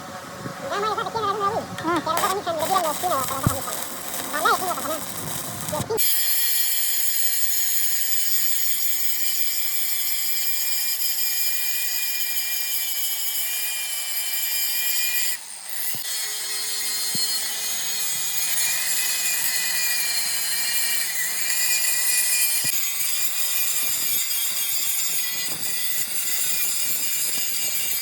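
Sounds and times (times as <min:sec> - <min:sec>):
electric grinder whine: 0:02.2 - 0:08.4.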